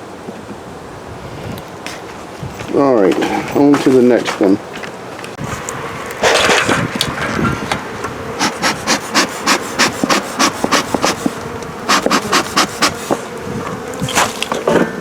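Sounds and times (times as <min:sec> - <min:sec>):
loud rustle: 0:01.2 - 0:15.0
bees buzzing: 0:03.2 - 0:15.0.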